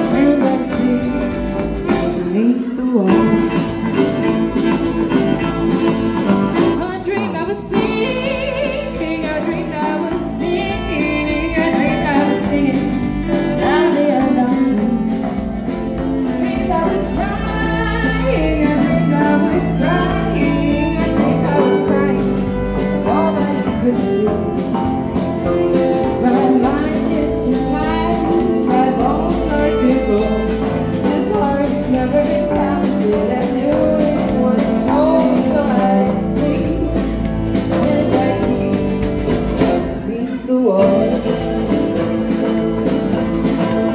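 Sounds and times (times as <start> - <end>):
live country band playing: 0.0 - 43.9.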